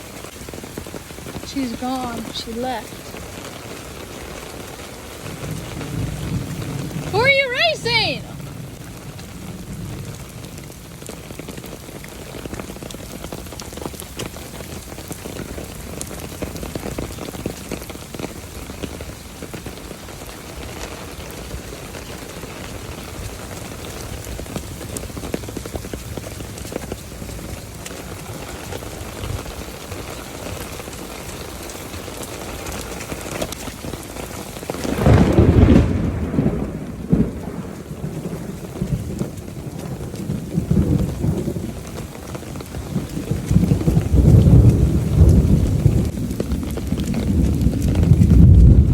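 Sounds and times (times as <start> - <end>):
thunder rumble: 0.0 - 13.4, 33.6 - 48.9
steady rain falling: 0.0 - 48.9.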